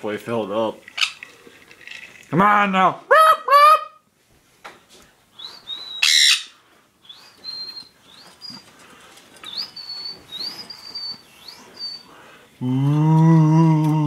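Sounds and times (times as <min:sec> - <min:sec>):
bird chirping: 0:05.4 - 0:08.8, 0:09.4 - 0:12.3.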